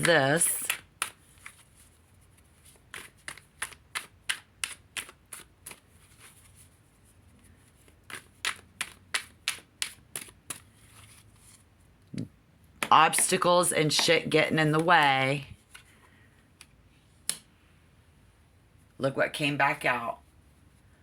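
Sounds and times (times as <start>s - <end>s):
cards being shuffled: 0.0s - 11.7s.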